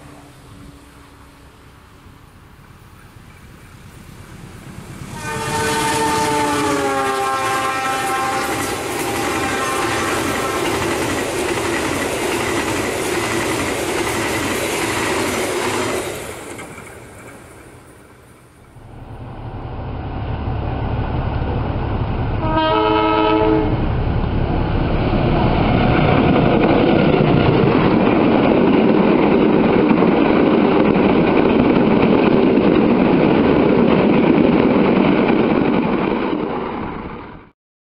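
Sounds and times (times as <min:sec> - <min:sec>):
diesel locomotive rumble: 0:00.0 - 0:37.5
train wheels on rail: 0:00.0 - 0:37.5
train chord horn: 0:05.1 - 0:11.0, 0:22.4 - 0:23.9.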